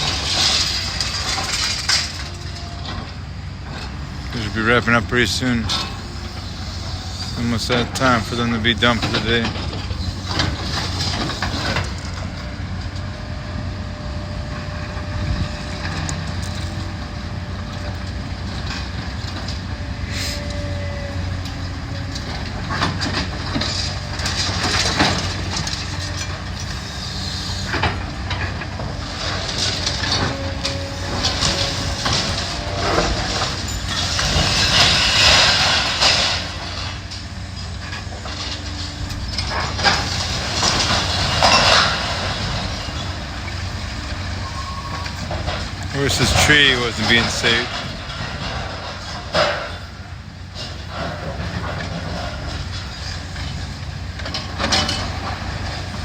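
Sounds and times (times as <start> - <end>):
crashing falling rubble: 0.0 - 3.1, 22.1 - 50.0
excavator diesel engine running: 0.0 - 56.0.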